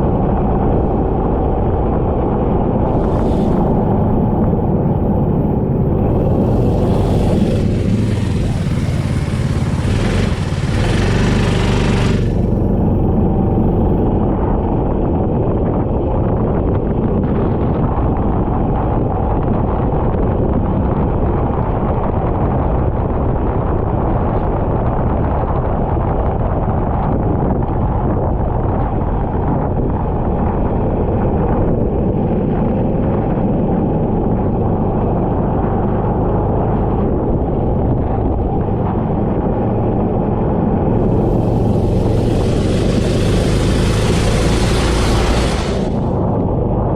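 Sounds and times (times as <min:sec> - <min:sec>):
go-kart engine running: 0:00.0 - 0:15.5, 0:30.2 - 0:46.9
wind and road noise: 0:00.0 - 0:46.9.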